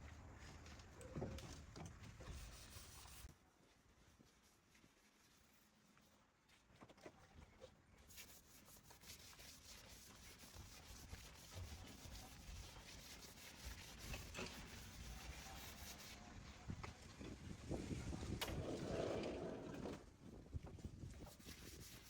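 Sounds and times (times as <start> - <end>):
faint rubbing and scraping: 7.5 - 16.7, 21.2 - 22.0.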